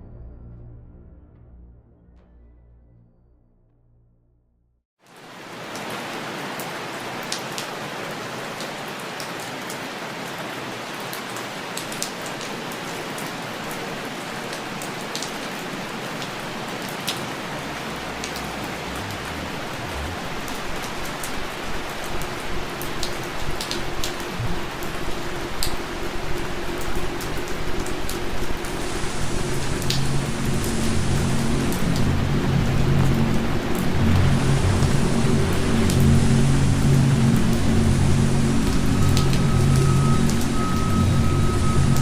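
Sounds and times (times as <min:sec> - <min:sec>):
low rumble: 0:00.0 - 0:04.8, 0:16.2 - 0:42.0
steady rain falling: 0:05.0 - 0:42.0.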